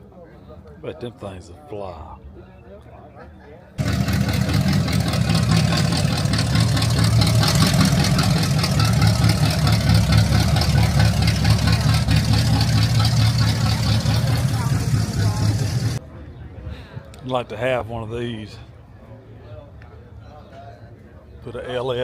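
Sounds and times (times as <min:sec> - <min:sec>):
car engine idling: 0:03.8 - 0:16.0.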